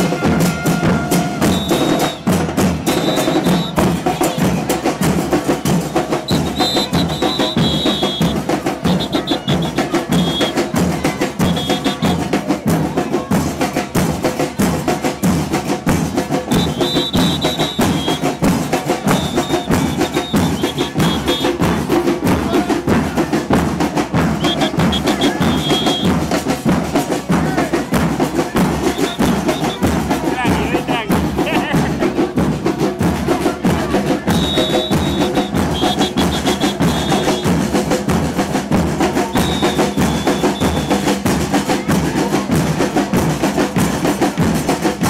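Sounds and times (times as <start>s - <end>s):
drums in a fast driving rhythm: 0.0s - 45.0s
short high whistle blasts: 1.4s - 2.3s, 2.9s - 3.9s, 6.2s - 10.6s, 11.5s - 12.2s, 16.5s - 18.4s, 19.1s - 21.6s, 24.4s - 26.2s, 28.9s - 29.9s, 34.3s - 37.6s, 39.3s - 41.2s.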